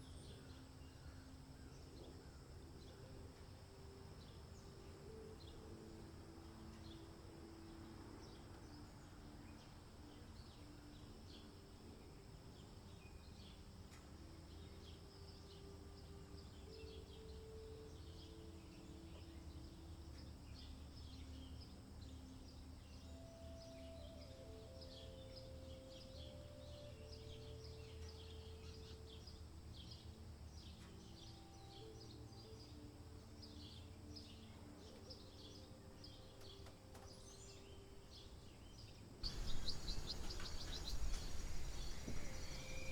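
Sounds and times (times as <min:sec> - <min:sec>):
small birds chirping: 0:00.0 - 0:42.9
low steady rumble: 0:39.2 - 0:42.9.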